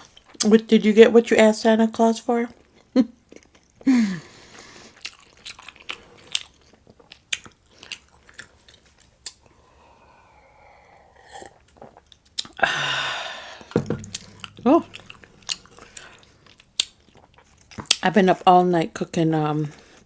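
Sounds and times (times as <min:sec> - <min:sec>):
person chewing food: 0:02.6 - 0:03.8, 0:04.5 - 0:09.6, 0:11.1 - 0:18.0
wet mouth clicks and smacks: 0:11.7 - 0:12.6.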